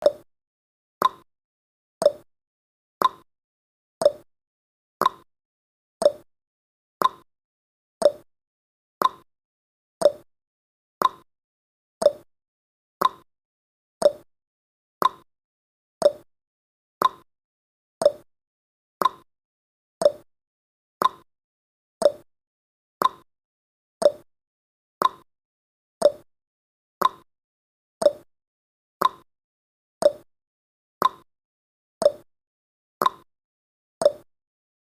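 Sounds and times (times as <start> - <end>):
timer ticking: 0.0 - 0.2, 1.0 - 1.2, 2.0 - 2.3, 3.0 - 3.3, 4.0 - 4.3, 5.0 - 5.3, 6.0 - 6.3, 7.0 - 7.3, 8.0 - 8.3, 9.0 - 9.3, 10.0 - 10.3, 11.0 - 11.3, 12.0 - 12.3, 13.0 - 13.3, 14.0 - 14.3, 15.0 - 15.3, 16.0 - 16.3, 17.0 - 17.3, 18.0 - 18.3, 19.0 - 19.3, 20.0 - 20.3, 21.0 - 21.3, 22.0 - 22.3, 23.0 - 23.3, 24.0 - 24.3, 25.0 - 25.3, 26.0 - 26.3, 27.0 - 27.3, 28.0 - 28.3, 29.0 - 29.3, 30.0 - 30.3, 31.0 - 31.3, 32.0 - 32.3, 33.0 - 33.3, 34.0 - 34.3.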